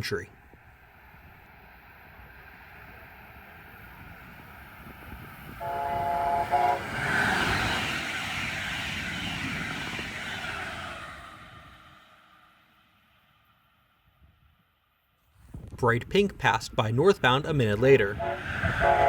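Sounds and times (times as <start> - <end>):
train passing at speed: 0.6 - 14.9, 17.7 - 19.0
train horn blast: 5.6 - 7.2, 18.1 - 19.0.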